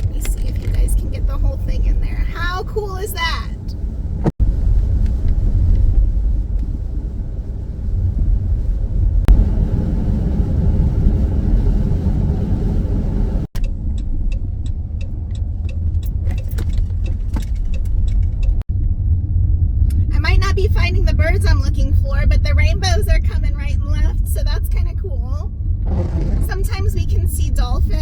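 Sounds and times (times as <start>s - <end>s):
road and engine rumble in a car: 0.0s - 28.0s
light ticks: 13.6s - 18.6s.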